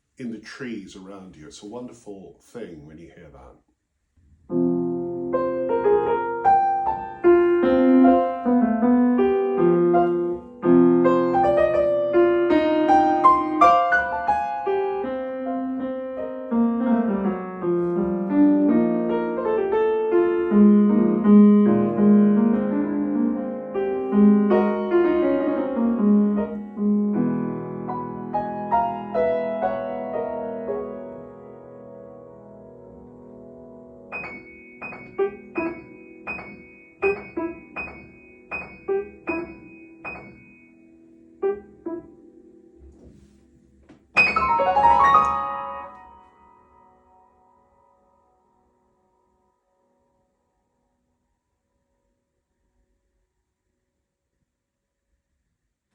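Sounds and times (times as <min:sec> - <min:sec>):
solo piano playing: 0:04.5 - 0:48.9.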